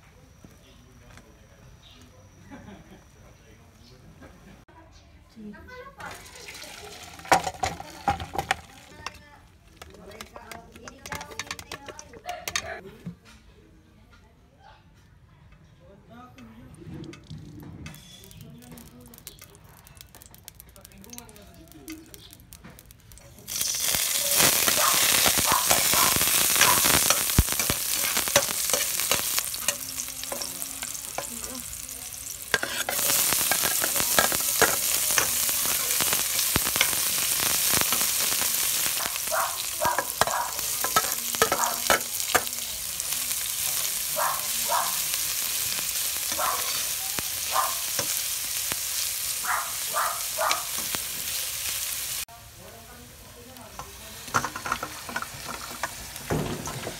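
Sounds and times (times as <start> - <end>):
garlic and onion sizzling in oil: 5.4 - 12.8, 17.3 - 56.9
spatula scraping a pot: 32.5 - 35.8.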